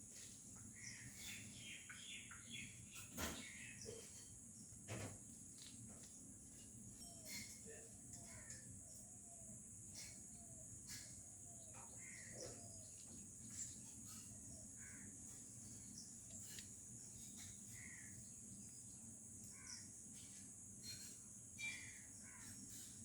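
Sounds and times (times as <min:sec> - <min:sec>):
insect drone: 0:04.2 - 0:23.0.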